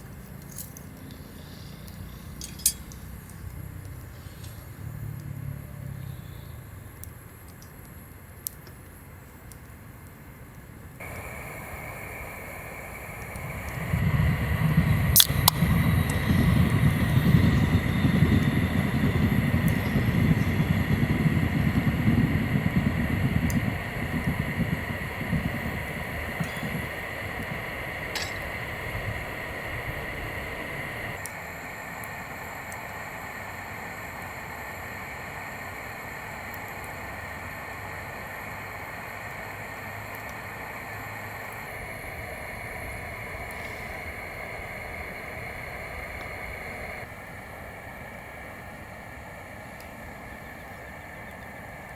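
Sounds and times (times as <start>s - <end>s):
high whine: 11.0s - 51.9s
train passing rumble: 11.0s - 51.9s.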